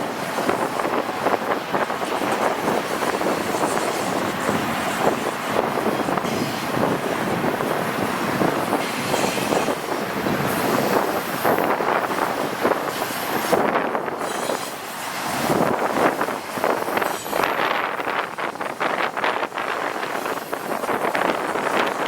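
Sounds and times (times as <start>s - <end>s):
freight train wheels on rails: 0.0s - 22.0s
high wheel squeal: 1.4s - 6.9s, 12.9s - 15.0s, 16.6s - 17.9s.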